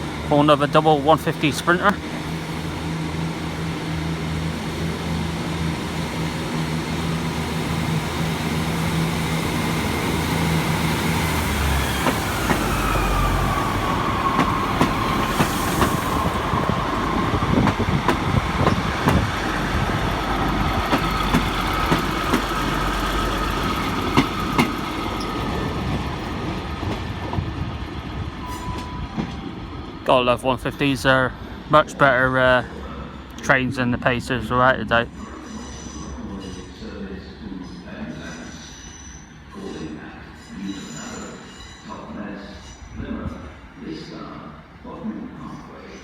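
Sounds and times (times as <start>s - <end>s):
diesel engine hum: 0.0s - 26.2s
train wheel squeal: 10.8s - 17.8s, 20.9s - 25.8s, 28.4s - 29.6s, 35.1s - 43.0s.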